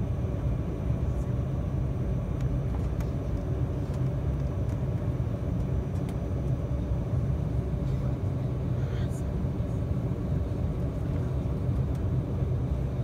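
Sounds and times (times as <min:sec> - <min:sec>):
jet cabin rumble: 0:00.0 - 0:13.0
faint clicks in cabin: 0:02.3 - 0:06.6, 0:11.0 - 0:12.2.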